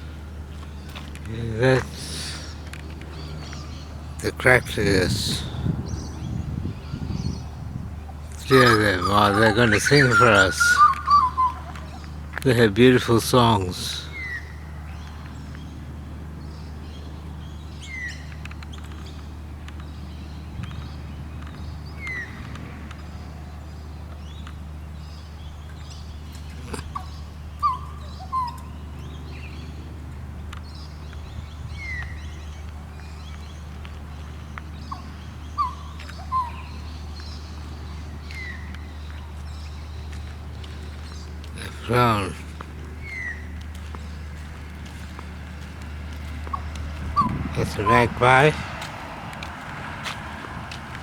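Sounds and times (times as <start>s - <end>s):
butcherbirds whistling: 0.0s - 15.8s, 16.4s - 30.0s, 30.6s - 48.7s
low piping bird notes: 0.0s - 49.1s
steady low hum: 0.0s - 51.0s.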